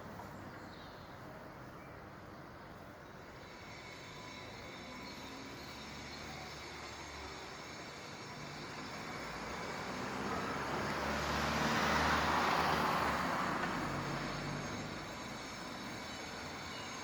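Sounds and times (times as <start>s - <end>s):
road vehicle passing: 4.3s - 17.0s.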